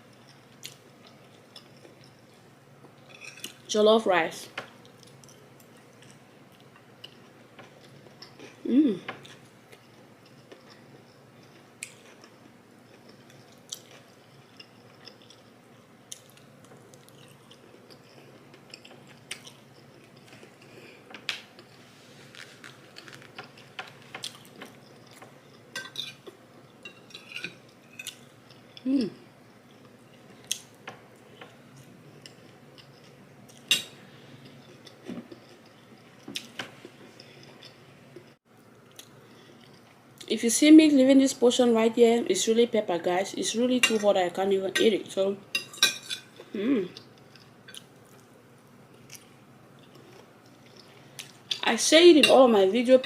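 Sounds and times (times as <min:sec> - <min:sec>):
chewing food: 0:09.2 - 0:20.9, 0:21.5 - 0:26.4, 0:46.3 - 0:48.3, 0:48.9 - 0:51.6.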